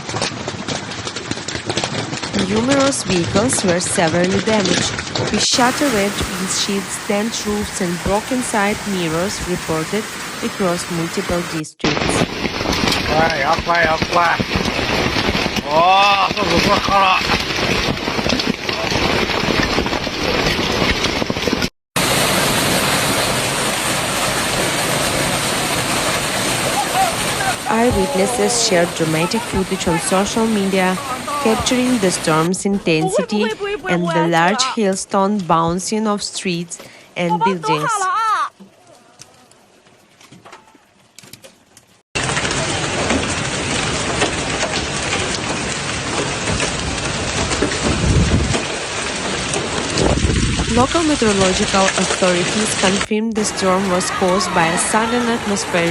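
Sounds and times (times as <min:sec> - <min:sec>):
hail and rain pelting: 0:00.0 - 0:55.9
rain-like hiss: 0:05.4 - 0:20.5, 0:22.0 - 0:32.5.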